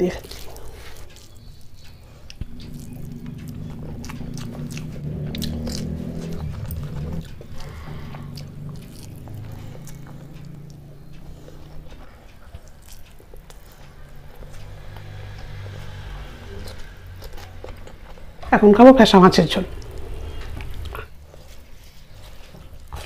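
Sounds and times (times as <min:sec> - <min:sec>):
close chewing: 0:00.0 - 0:23.0
wet mouth clicks: 0:00.2 - 0:15.6
fingers mixing rice on steel plate: 0:00.2 - 0:15.8.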